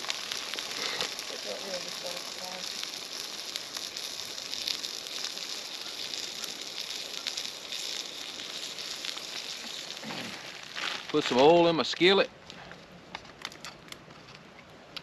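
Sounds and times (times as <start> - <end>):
meat sizzling in oil: 0.0 - 11.8
oil popping and crackling: 0.0 - 14.1.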